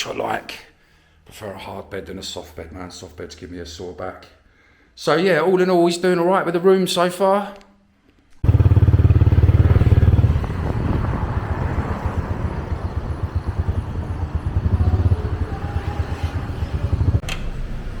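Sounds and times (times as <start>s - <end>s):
motorbike engine pulsing: 8.4s - 18.0s.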